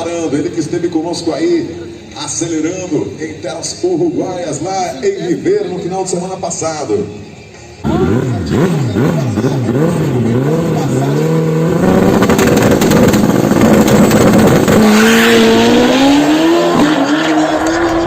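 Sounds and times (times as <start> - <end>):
motorcycle engine revving: 7.8 - 18.0
motorcycle pulling away hard: 7.9 - 18.0.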